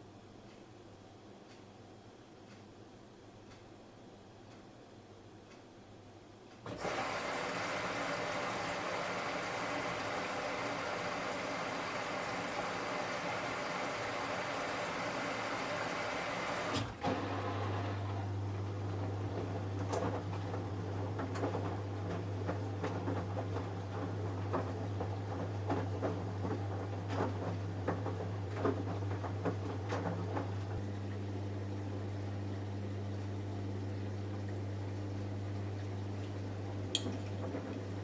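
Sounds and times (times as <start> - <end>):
washing machine hum: 6.6 - 38.0
wet sloshing laundry: 6.7 - 31.3, 33.0 - 38.0
water filling washing machine: 6.7 - 38.0
washing machine click: 36.9 - 37.9.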